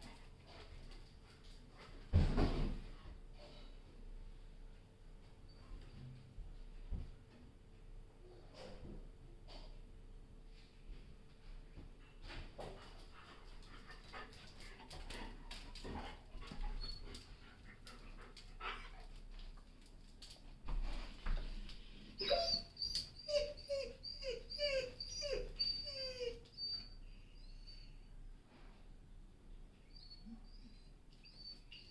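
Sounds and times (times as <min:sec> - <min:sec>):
dog whimpering: 0:22.2 - 0:28.0.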